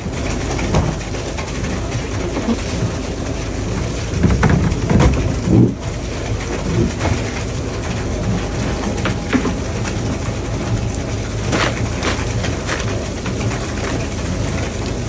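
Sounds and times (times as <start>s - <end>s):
boat engine and deck machinery: 0.0s - 15.0s
thumps and knocks: 0.6s - 1.2s, 3.7s - 9.9s.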